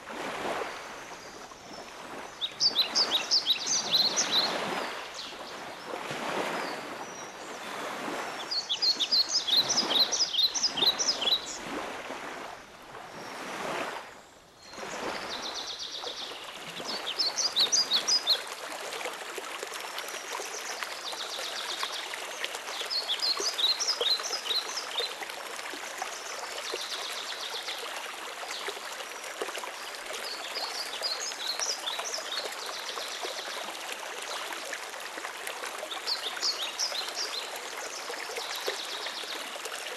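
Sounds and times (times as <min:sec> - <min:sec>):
running water rush: 0:00.0 - 0:39.9
songbird chirping: 0:08.4 - 0:11.7.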